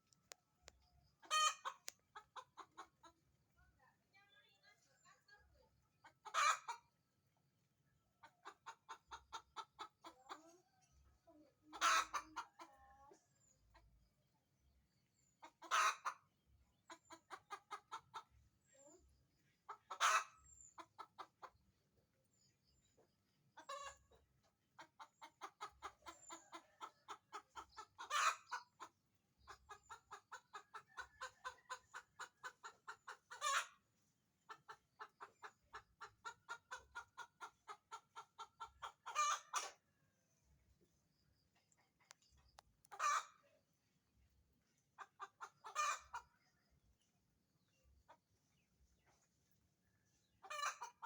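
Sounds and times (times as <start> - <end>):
hen cackling: 1.2 - 2.9, 6.2 - 6.8, 11.7 - 12.7, 15.5 - 16.2, 25.3 - 28.9, 29.7 - 33.8, 34.5 - 39.8, 42.9 - 43.4, 45.0 - 46.3, 50.4 - 51.0.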